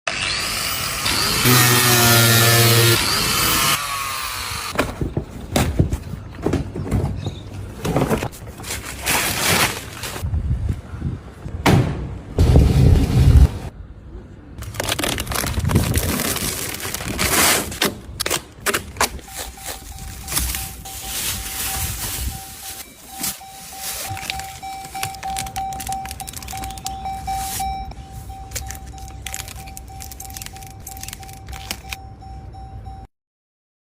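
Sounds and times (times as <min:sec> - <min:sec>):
packaging rustling and scraping: 0:07.8 - 0:10.2, 0:14.6 - 0:32.0
handling clicks and crackles: 0:24.0 - 0:32.0.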